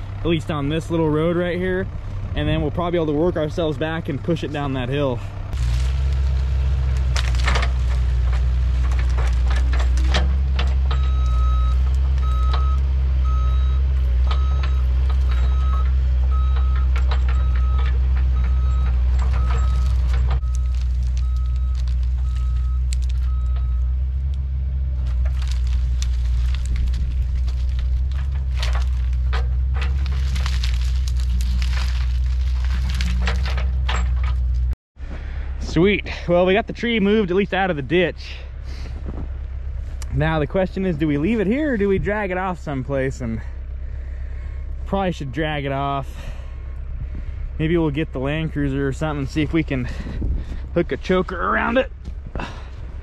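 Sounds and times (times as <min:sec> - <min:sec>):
diesel engine running: 0:00.0 - 0:53.0
clanks and scrapes: 0:07.2 - 0:11.2, 0:25.0 - 0:34.8.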